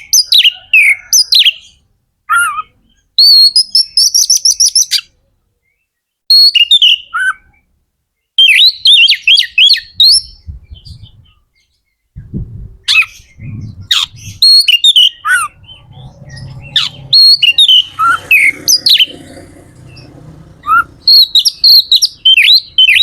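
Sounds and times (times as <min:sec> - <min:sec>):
bird singing whistled phrases: 0:02.3 - 0:05.1, 0:08.4 - 0:11.2, 0:12.8 - 0:15.8, 0:21.1 - 0:23.0
low background rumble: 0:12.2 - 0:14.7, 0:15.4 - 0:22.3.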